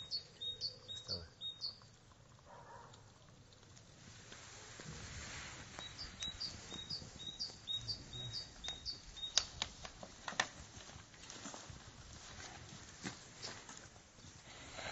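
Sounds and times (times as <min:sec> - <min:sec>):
bird chirping: 0:00.0 - 0:02.1, 0:05.7 - 0:09.9
sharp clicks: 0:08.6 - 0:10.5.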